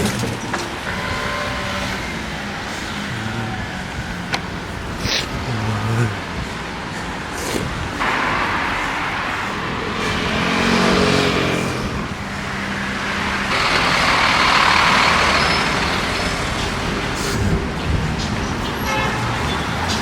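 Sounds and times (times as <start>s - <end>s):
road traffic passing: 0.0s - 20.0s
large vehicle engine passing: 0.7s - 18.6s.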